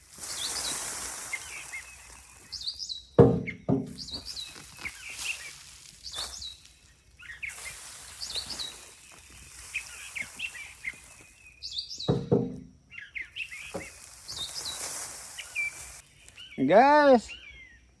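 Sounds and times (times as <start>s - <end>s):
songbirds chirping: 0.1s - 18.0s
loud knocks or rustles: 3.2s - 4.5s, 12.0s - 12.8s, 13.7s - 14.0s.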